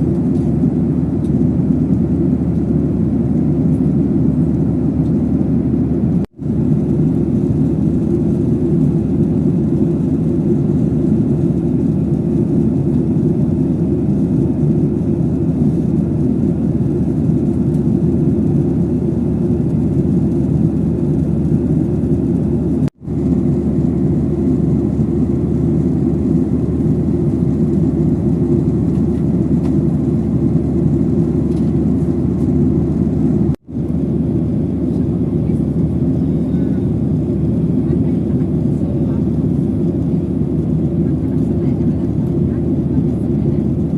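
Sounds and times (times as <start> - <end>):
airliner engines droning: 0.0 - 43.9.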